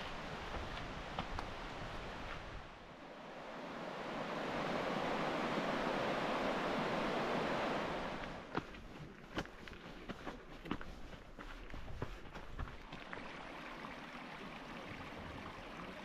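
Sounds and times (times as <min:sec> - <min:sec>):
creek water rushing: 0:00.0 - 0:16.0
footsteps: 0:08.4 - 0:13.3.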